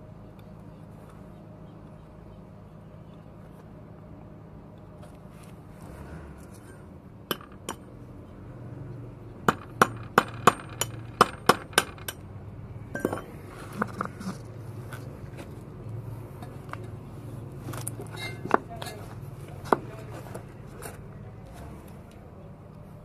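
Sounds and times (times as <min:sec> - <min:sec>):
metal tools striking metal: 0:13.0 - 0:13.4.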